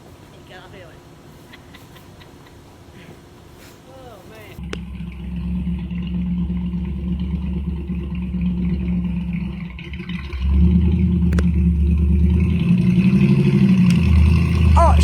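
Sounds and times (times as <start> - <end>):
heavy machine engine running: 4.6 - 15.0.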